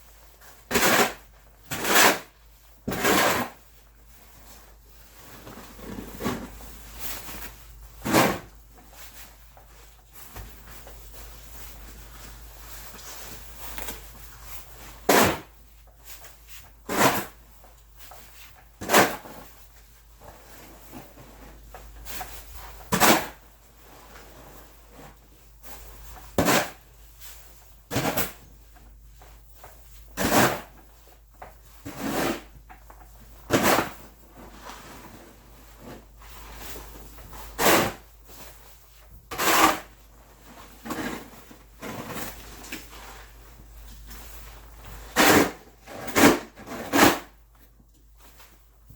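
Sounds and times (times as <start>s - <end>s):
snow shovel scraping: 39.3s - 39.9s.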